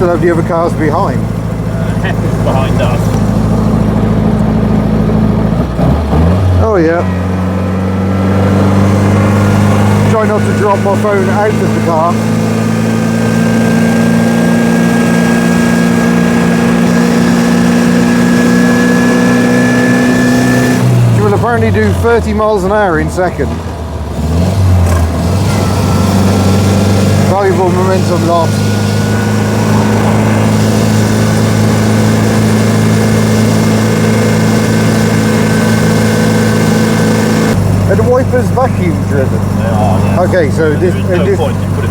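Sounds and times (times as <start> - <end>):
road noise: 0.0 - 41.9
small car engine running: 0.0 - 41.9.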